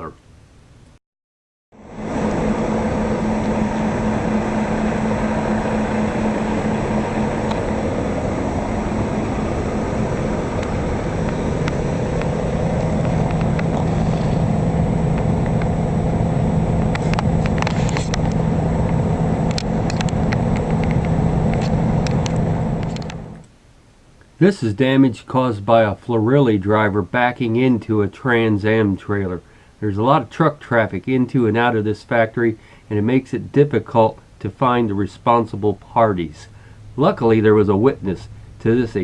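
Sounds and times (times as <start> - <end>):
truck engine running: 1.8 - 23.5.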